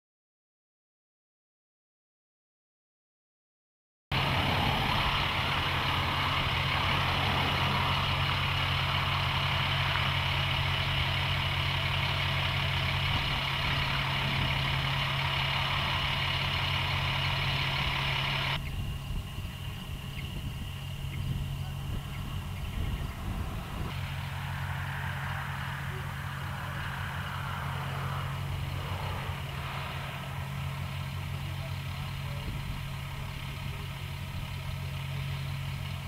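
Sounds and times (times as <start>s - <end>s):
truck machinery hum: 4.1s - 36.0s
thin high whine: 23.5s - 32.1s.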